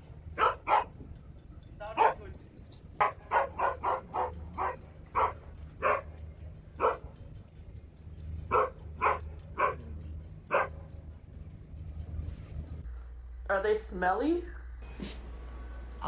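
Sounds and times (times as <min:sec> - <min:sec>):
dog barking: 0:00.4 - 0:01.0, 0:02.0 - 0:02.2, 0:03.0 - 0:06.2, 0:06.8 - 0:07.1, 0:08.5 - 0:09.9, 0:10.5 - 0:10.9.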